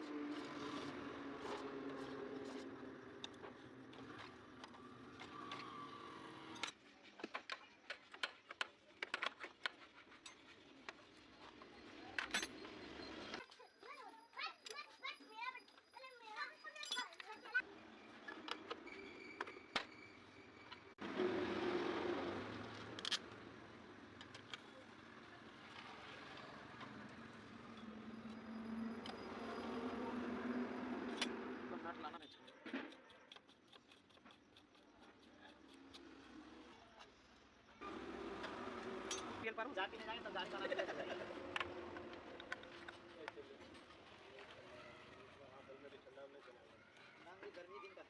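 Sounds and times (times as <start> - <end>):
tools and metal parts clicking: 12.1 - 13.6, 16.7 - 17.5, 22.8 - 23.4, 38.4 - 39.4.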